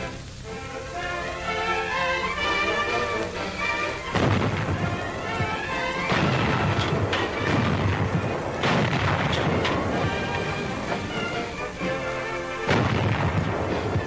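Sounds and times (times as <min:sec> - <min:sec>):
orchestral music: 0:00.0 - 0:14.0
explosions: 0:03.6 - 0:14.0
gunfire: 0:04.0 - 0:14.0.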